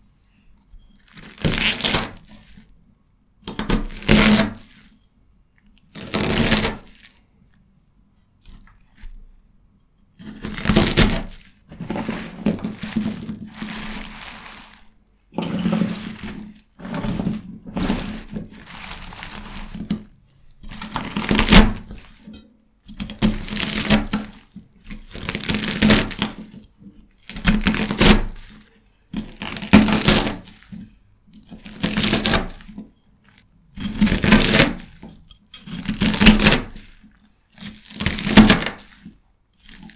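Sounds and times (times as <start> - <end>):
knife crunching through celery: 3.5 - 5.0, 5.8 - 7.3, 10.2 - 22.3, 22.9 - 26.6, 29.2 - 39.9.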